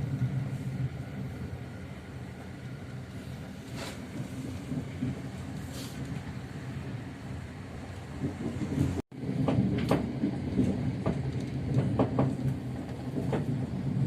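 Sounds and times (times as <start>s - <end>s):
train rumbling on track: 0.0s - 14.0s
wheels clacking and knocking: 8.2s - 14.0s.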